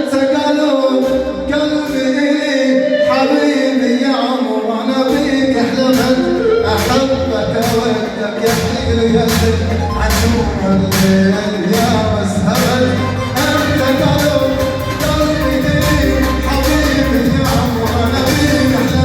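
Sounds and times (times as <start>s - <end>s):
strong bass line: 5.1s - 19.0s
wedding band music: 5.1s - 19.0s.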